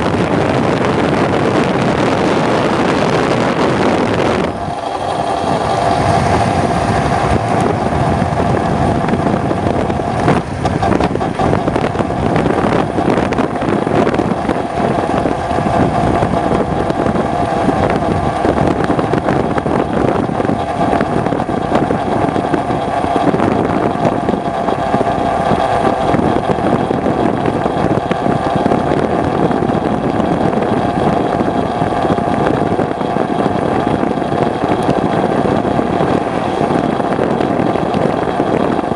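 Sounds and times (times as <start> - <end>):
rushing wind noise: 0.0 - 38.9
two-stroke motorcycle engine: 0.0 - 38.9.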